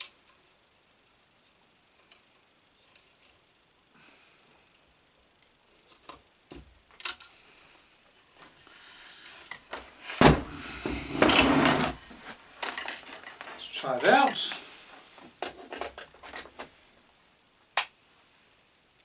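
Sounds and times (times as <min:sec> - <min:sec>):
rustling clatter of parts: 0:09.2 - 0:16.8.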